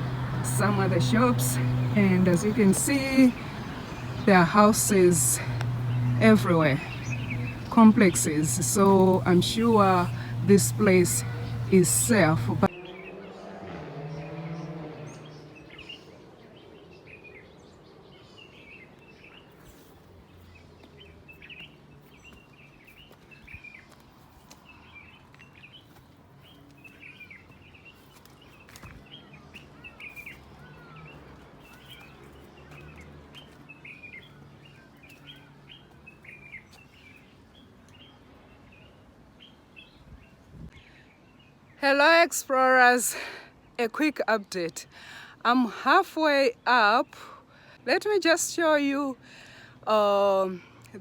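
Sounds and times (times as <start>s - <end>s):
low background hum: 0.0s - 12.7s
birds chirping: 0.0s - 51.0s.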